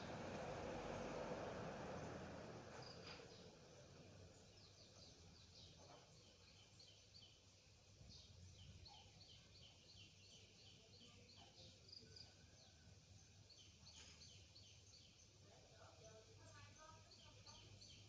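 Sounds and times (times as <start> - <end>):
low steady hum: 0.0 - 8.6.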